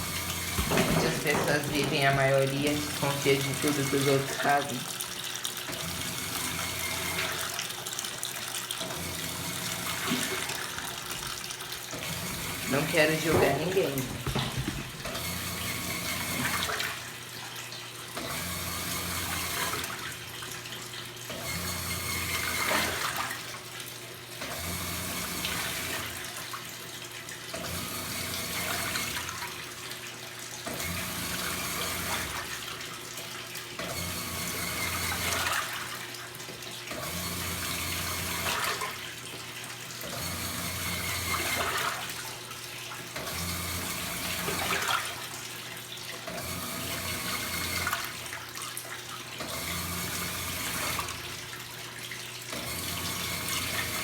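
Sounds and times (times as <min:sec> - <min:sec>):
washing machine motor humming: 0:00.0 - 0:23.6, 0:49.4 - 0:54.0
water sloshing in tub: 0:00.0 - 0:54.0.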